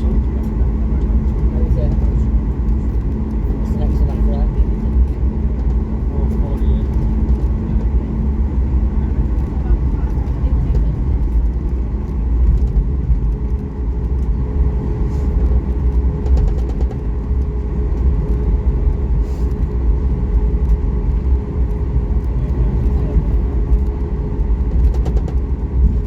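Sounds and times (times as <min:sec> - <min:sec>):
constant hum: 0:00.0 - 0:26.0
vehicle interior rumble: 0:00.0 - 0:26.0.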